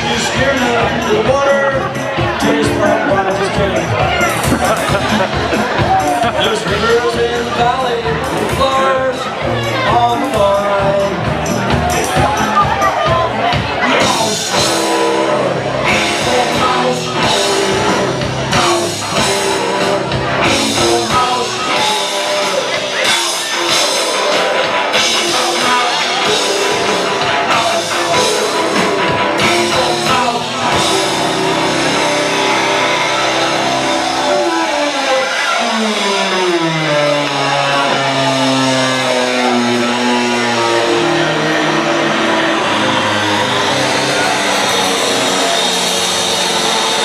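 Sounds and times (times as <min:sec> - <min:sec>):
loud rock music: 0:00.0 - 0:47.0
sustained tones sliding down: 0:30.7 - 0:47.0.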